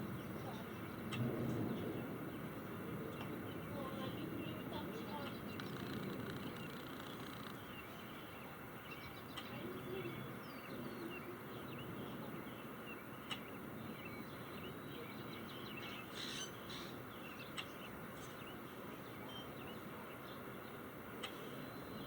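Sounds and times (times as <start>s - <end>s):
outdoor background hiss: 0.0s - 22.0s
faint bird chirps: 3.2s - 13.4s, 14.0s - 20.4s.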